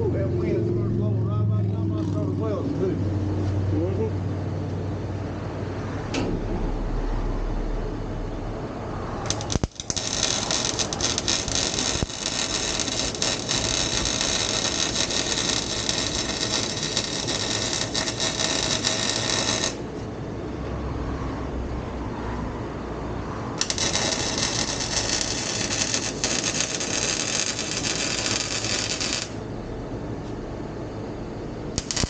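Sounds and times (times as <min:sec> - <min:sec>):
welder crackling sizzle: 0:09.3 - 0:19.8, 0:23.6 - 0:29.4, 0:31.8 - 0:32.0.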